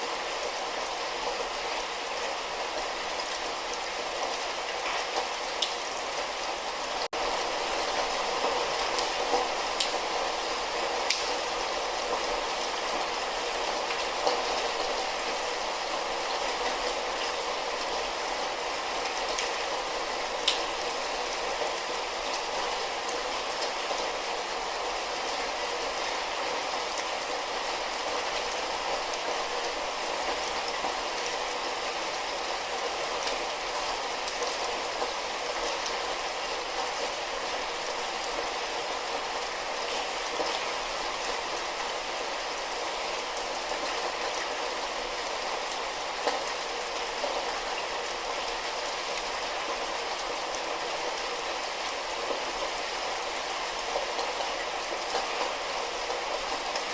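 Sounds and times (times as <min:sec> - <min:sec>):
light rain falling: 0:00.0 - 0:56.9
raindrop ticks: 0:09.8 - 0:10.0, 0:11.0 - 0:11.4, 0:20.4 - 0:20.7.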